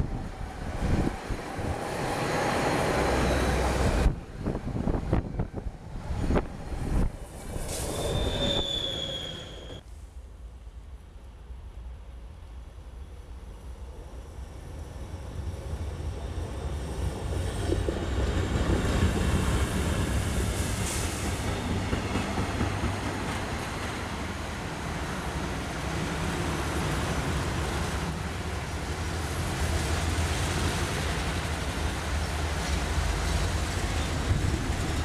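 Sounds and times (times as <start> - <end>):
electric locomotive passing: 0.0 - 9.8, 12.8 - 35.0
freight train rumbling on rails: 0.0 - 35.0.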